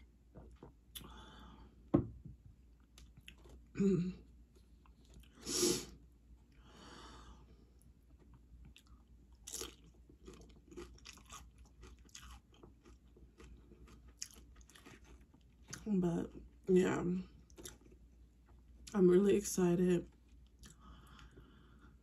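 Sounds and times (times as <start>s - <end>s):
tortilla chips crunching: 8.6s - 15.9s.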